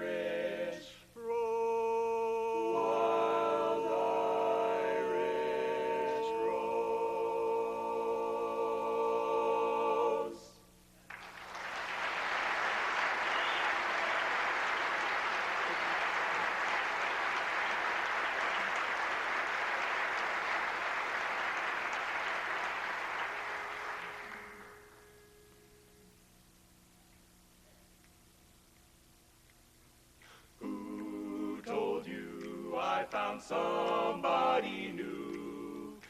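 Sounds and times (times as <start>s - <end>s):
barbershop quartet singing chord: 0.0s - 10.8s, 30.6s - 36.0s
audience applauding: 11.1s - 25.0s.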